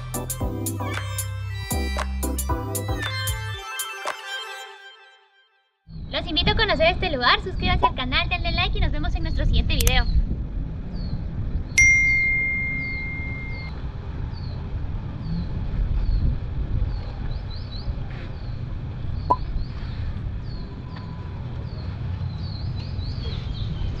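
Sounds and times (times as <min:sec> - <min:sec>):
bright ringing tone: 0:11.8 - 0:13.7.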